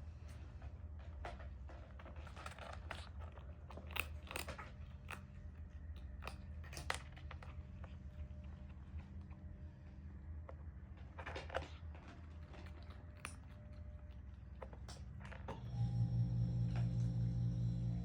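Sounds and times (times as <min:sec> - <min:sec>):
kitten chewing food: 0:01.9 - 0:09.6, 0:10.5 - 0:15.5.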